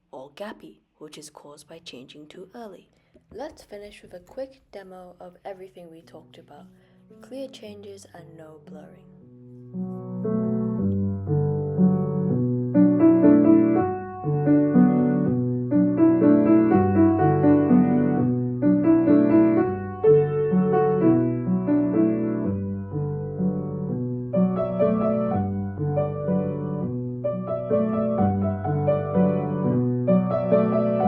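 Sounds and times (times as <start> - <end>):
piano playing flowing chords: 9.2 - 31.0.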